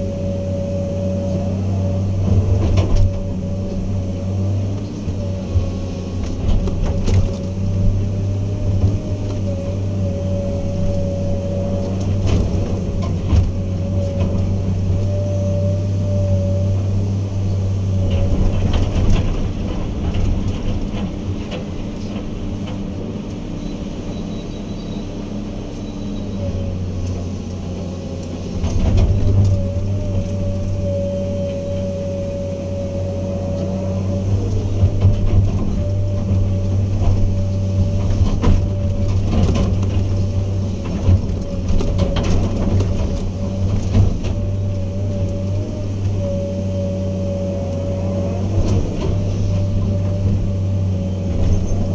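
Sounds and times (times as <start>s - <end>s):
diesel engine running: 0.0s - 51.9s
high wavering whine: 29.2s - 40.9s.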